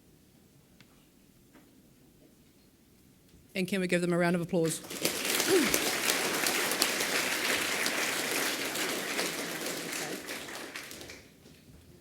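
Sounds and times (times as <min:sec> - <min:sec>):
children clapping: 0:04.8 - 0:11.4.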